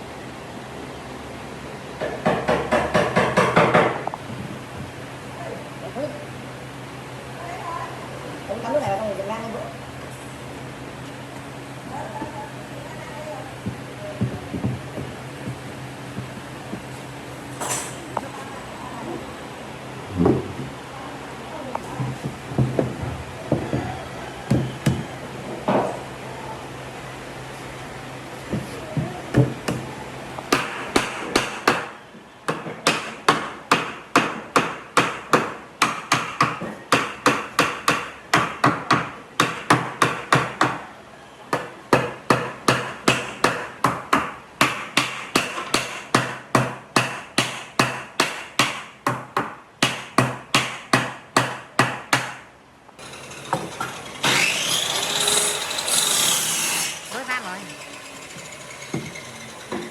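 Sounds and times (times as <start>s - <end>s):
power tool running: 53.0s - 59.9s.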